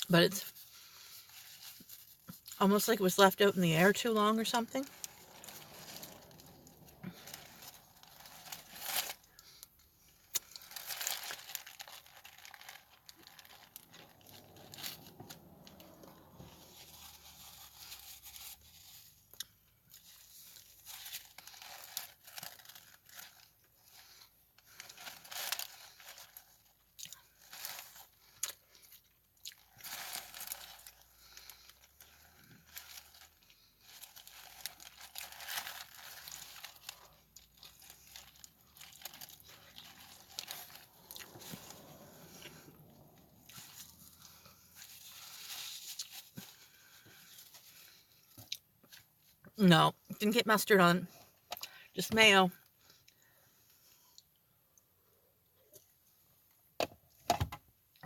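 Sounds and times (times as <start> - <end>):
paper crinkling: 4.4 - 9.6, 10.4 - 19.1, 20.0 - 28.4, 29.6 - 48.0
chewing and crunching food: 4.4 - 49.5.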